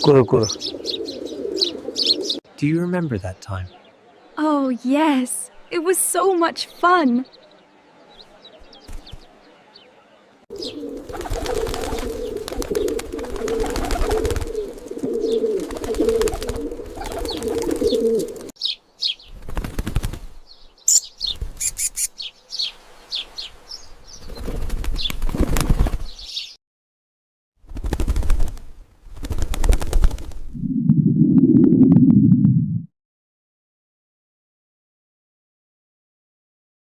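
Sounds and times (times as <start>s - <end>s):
pigeons cooing: 0.0s - 2.4s, 10.5s - 18.5s
pigeon wings flapping: 10.8s - 18.5s, 19.4s - 20.4s, 24.2s - 26.2s, 27.7s - 30.6s
high bird chirps: 17.0s - 19.4s, 20.4s - 24.4s.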